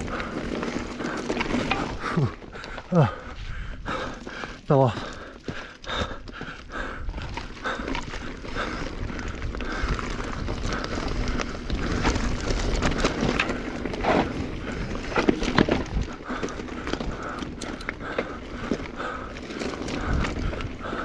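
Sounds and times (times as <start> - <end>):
bike clattering on rocky trail: 0.0 - 21.0
wind rumble on microphone: 6.2 - 21.0.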